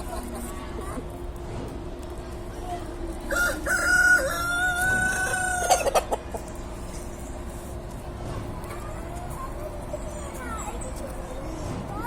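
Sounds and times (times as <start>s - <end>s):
rooster crowing: 3.3s - 6.0s.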